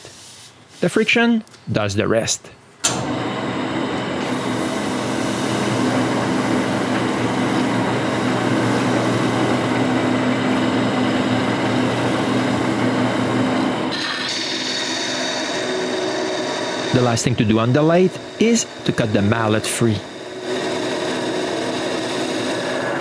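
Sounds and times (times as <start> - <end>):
paper towel friction hiss: 0.0 - 1.0
wood lathe motor hum: 3.0 - 23.0.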